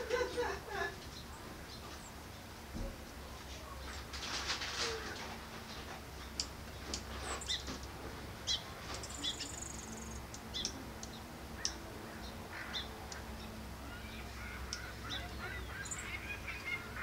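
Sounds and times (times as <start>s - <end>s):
small birds chirping: 5.6s - 17.0s.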